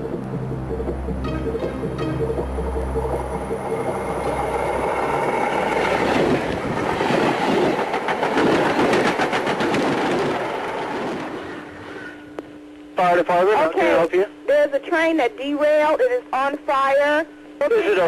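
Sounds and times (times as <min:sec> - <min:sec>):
train rushing and rumbling: 0:00.0 - 0:12.3
train wheels clattering: 0:05.6 - 0:11.6.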